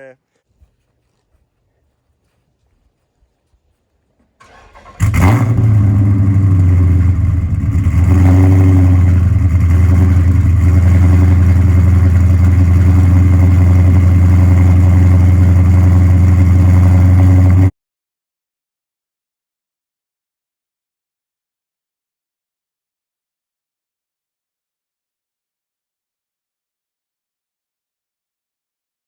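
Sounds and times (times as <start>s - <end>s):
faint engine crank: 4.2s - 5.6s
car engine starting and running: 4.4s - 17.7s.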